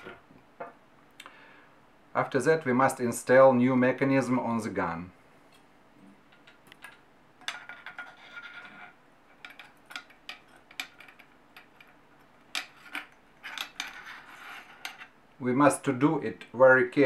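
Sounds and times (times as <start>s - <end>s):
metal parts clicking and knocking: 6.3s - 15.1s
metal scraping rub: 12.7s - 15.2s.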